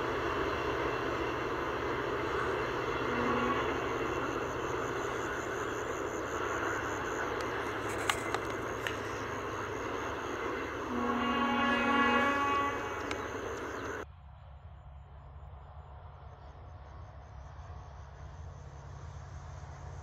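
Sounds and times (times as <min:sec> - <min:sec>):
train wheels rumbling on track: 0:00.0 - 0:14.1.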